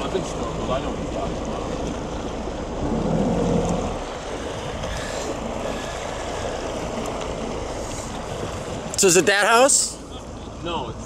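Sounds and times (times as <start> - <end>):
boat engine rumble: 0.0 - 11.0
water noise: 0.0 - 11.0
rushing wind: 1.9 - 10.2.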